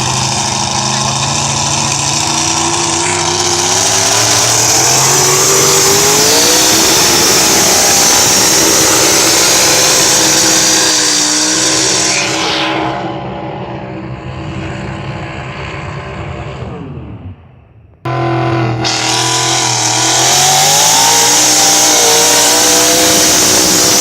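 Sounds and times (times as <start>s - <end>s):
truck engine at full throttle: 0.0s - 24.0s.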